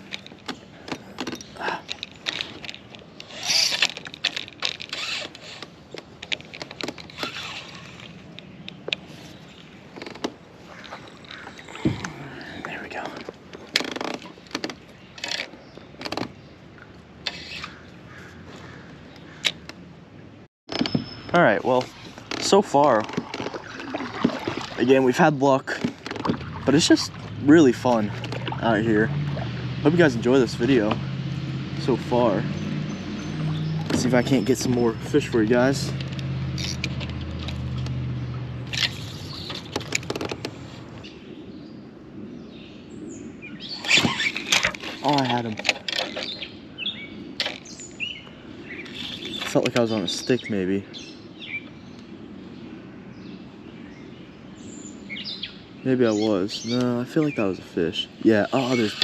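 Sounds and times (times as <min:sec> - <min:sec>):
fishing gear clicks and knocks: 0:00.0 - 0:17.8, 0:20.7 - 0:25.0, 0:25.6 - 0:29.4, 0:33.4 - 0:41.0, 0:43.8 - 0:46.6, 0:47.4 - 0:47.8, 0:48.8 - 0:50.4
scraping and rubbing noises: 0:38.6 - 0:41.0.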